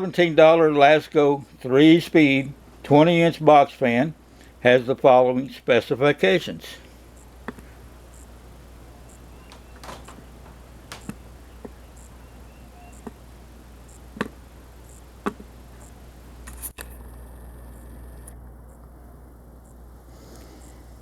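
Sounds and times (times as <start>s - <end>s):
low steady hum: 0.0s - 21.0s
faint clicks and taps: 7.4s - 7.7s, 9.1s - 12.2s, 12.9s - 13.3s, 14.2s - 16.6s.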